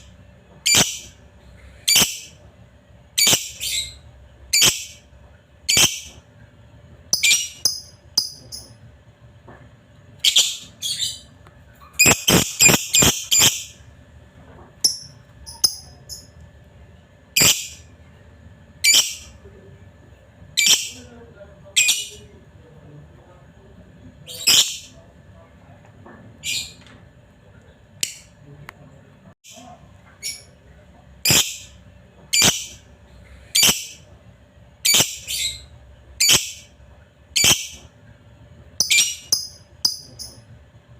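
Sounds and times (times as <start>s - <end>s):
lovebird chirping: 0.7s - 1.1s, 3.2s - 4.0s, 5.7s - 6.1s, 7.1s - 8.7s, 12.0s - 13.7s, 14.9s - 16.3s, 31.3s - 31.7s, 38.8s - 40.4s.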